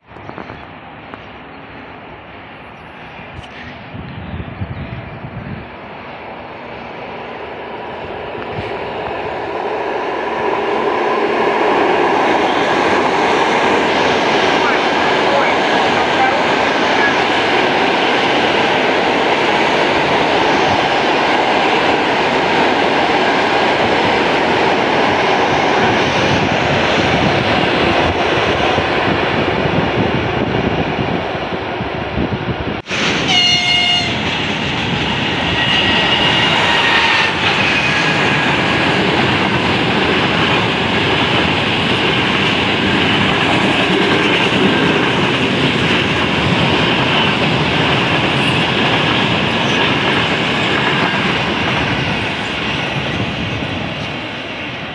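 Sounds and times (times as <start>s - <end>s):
train wheels clattering on rails: 32.8s - 54.9s
train horn blast: 33.2s - 34.2s.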